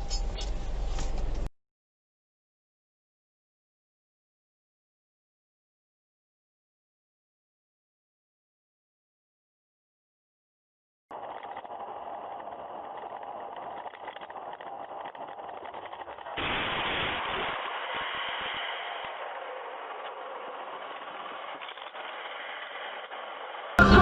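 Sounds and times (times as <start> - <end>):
car road noise: 0.0 - 1.5, 11.1 - 24.0.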